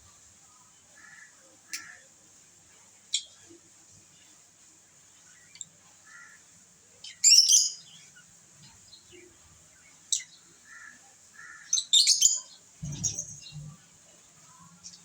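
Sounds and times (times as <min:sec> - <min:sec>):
lovebirds chirping: 0:11.7 - 0:13.8.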